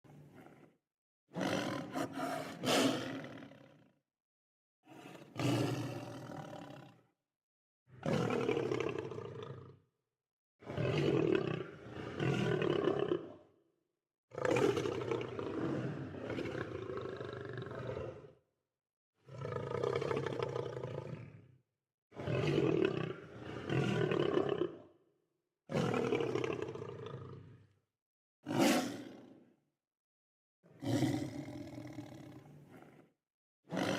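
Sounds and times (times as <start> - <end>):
lions roaring: 1.4 - 3.6, 28.5 - 29.1.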